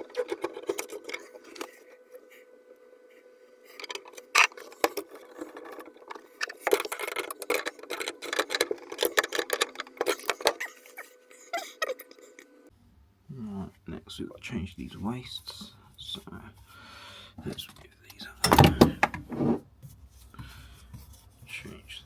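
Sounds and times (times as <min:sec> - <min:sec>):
faint steady hum: 0:00.0 - 0:22.0
metal tools clinking: 0:18.4 - 0:19.2.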